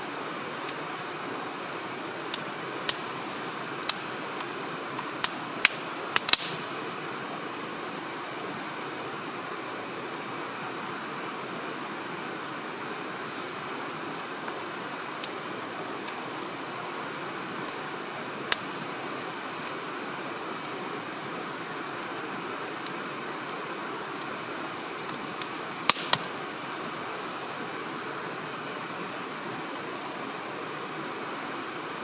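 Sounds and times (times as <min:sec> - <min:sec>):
steady rushing hiss: 0:00.0 - 0:32.0
wood fire crackling: 0:00.1 - 0:32.0
sharp pops of fire: 0:01.7 - 0:03.1, 0:05.0 - 0:06.9, 0:25.0 - 0:26.7.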